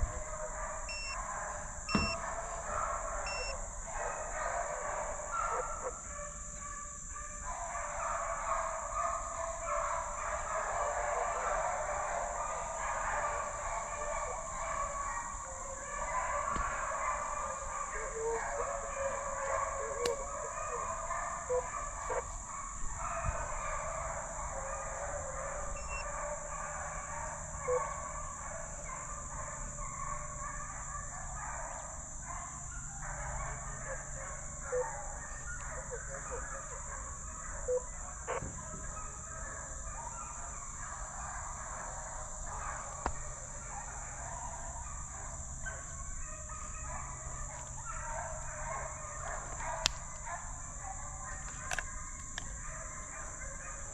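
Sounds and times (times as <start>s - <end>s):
hounds baying in chorus: 0.0s - 53.9s.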